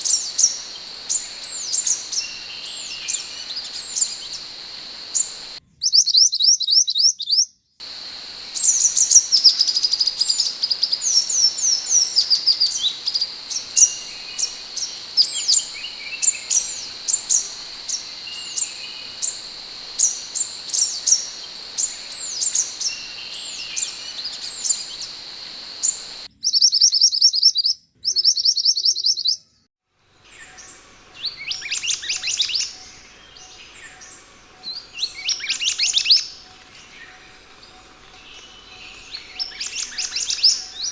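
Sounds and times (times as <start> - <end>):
bird trills: 0.0 - 5.6, 7.8 - 26.3
bird whistling song: 0.0 - 5.6, 7.8 - 26.3
fast buzzy bird notes: 0.0 - 5.6, 7.8 - 26.3
steady high hum: 0.0 - 5.6, 7.8 - 26.3.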